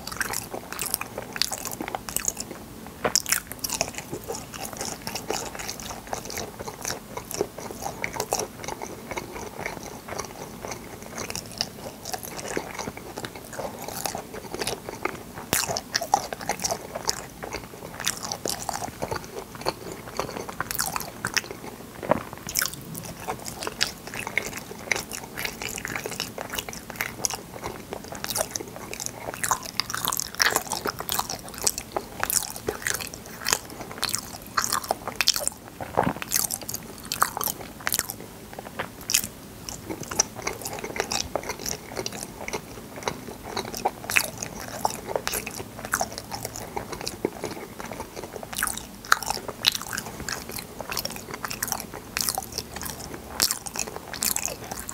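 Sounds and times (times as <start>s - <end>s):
chewing and biting jelly: 0.0s - 54.9s.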